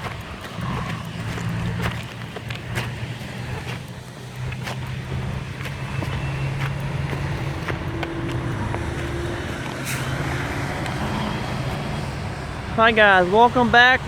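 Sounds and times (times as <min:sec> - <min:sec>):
freight train rumbling: 0:00.0 - 0:14.0
wheels clicking over rail joints: 0:00.0 - 0:14.0.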